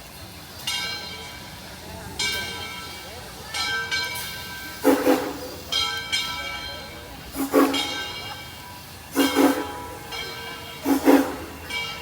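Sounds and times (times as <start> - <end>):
locomotive bell ringing: 0.0 - 12.0
steam locomotive exhaust beats: 0.0 - 12.0.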